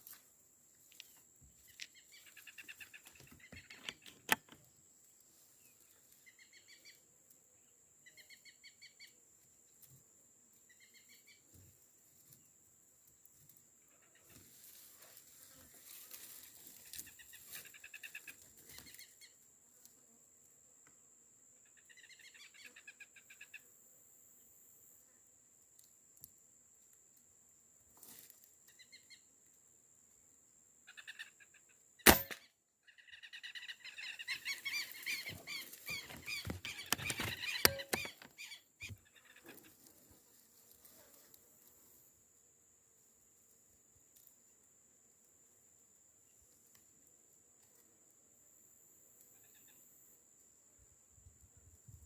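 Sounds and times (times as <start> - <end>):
sharp click: 32.1 - 32.4, 36.7 - 38.3
insect whine: 33.0 - 47.8, 48.4 - 52.0.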